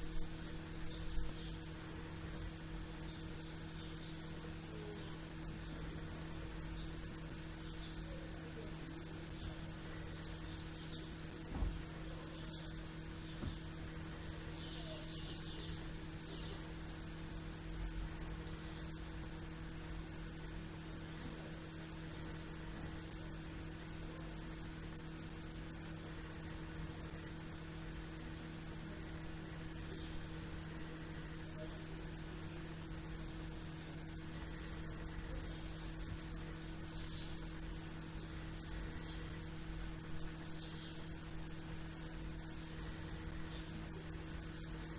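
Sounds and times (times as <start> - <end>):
small birds chirping: 0.0 - 17.5, 18.1 - 19.1, 29.7 - 30.4, 34.4 - 39.6, 40.2 - 41.7, 42.4 - 44.1
low electrical hum: 0.0 - 44.9.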